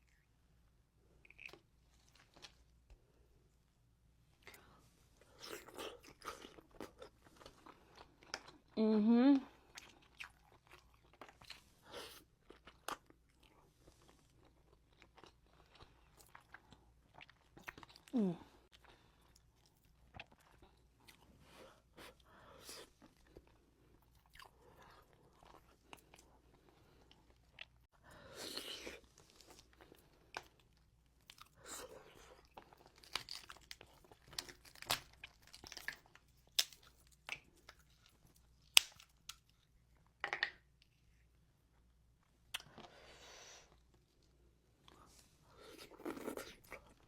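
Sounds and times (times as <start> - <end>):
chewing and crunching: 4.4 - 8.8, 28.5 - 39.7.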